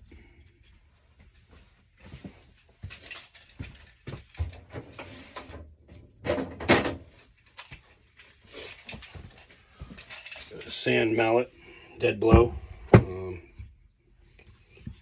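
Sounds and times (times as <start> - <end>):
tools rattling: 2.9 - 5.2, 6.3 - 11.0
tools knocking and clattering: 6.2 - 10.7.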